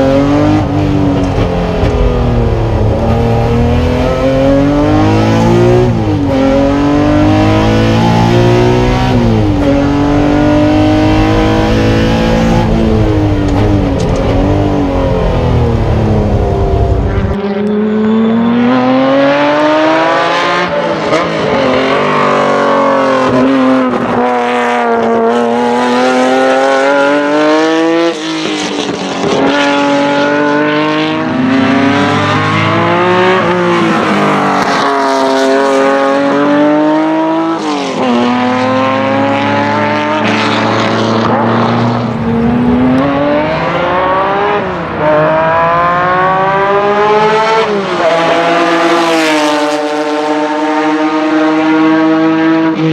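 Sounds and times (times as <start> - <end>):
racecar engine at full throttle: 0.0 - 52.9.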